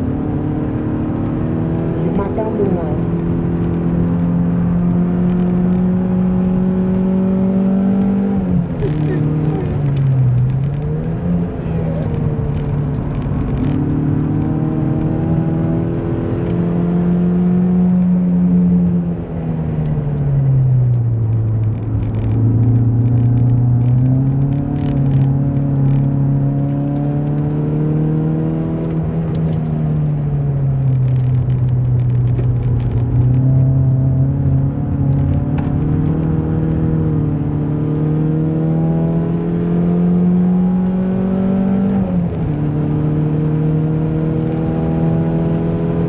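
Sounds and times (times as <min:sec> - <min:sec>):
car engine under hard driving: 0:00.0 - 0:46.0.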